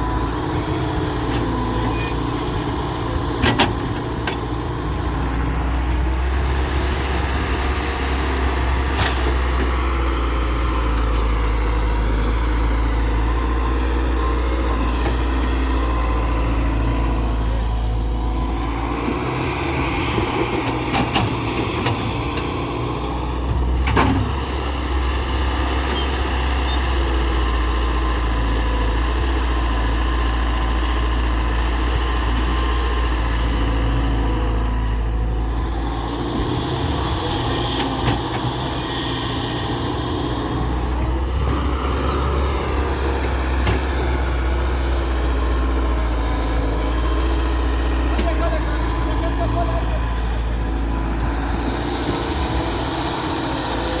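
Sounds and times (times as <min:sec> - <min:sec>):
diesel excavator engine rumbling: 0:00.0 - 0:54.0.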